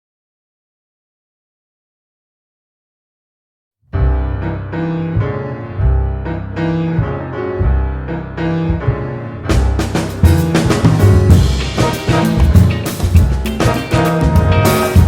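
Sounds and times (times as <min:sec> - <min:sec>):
piano music with deep bass: 0:03.9 - 0:15.0
drums and cymbals: 0:09.5 - 0:15.0.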